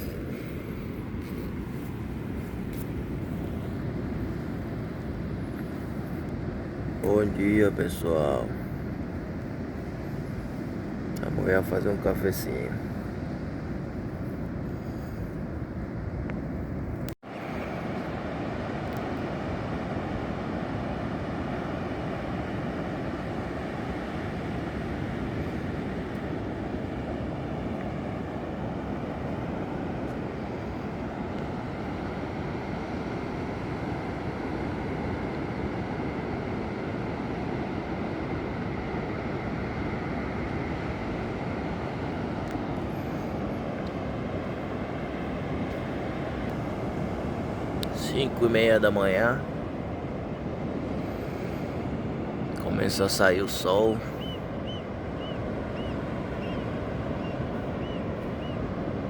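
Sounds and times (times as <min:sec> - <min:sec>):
sea surf breaking on beach: 0:17.2 - 0:59.0.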